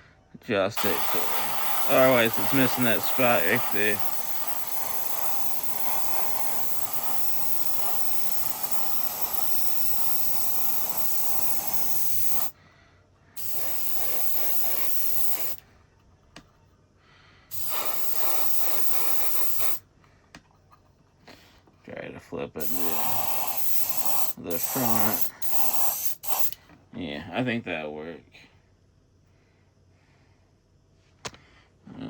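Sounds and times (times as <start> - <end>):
paint spraying hiss: 0.7 - 12.5, 13.4 - 15.6, 17.5 - 19.8, 22.6 - 26.6.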